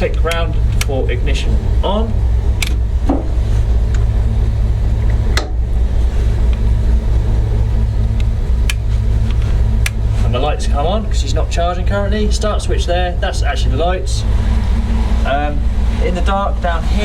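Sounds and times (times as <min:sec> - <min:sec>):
engine idling: 0:00.0 - 0:17.0
sharp clicks: 0:00.2 - 0:01.0, 0:08.1 - 0:10.0.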